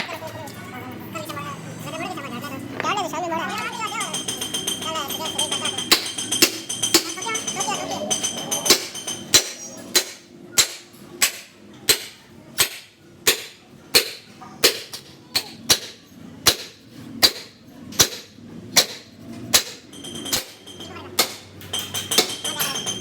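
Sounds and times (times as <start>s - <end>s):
hammer striking metal: 3.6s - 23.0s.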